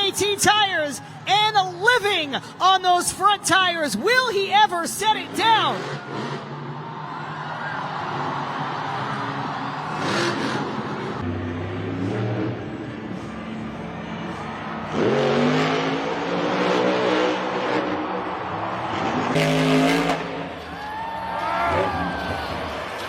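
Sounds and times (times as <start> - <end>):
monster truck engine revving: 5.5 - 20.8, 21.4 - 23.0.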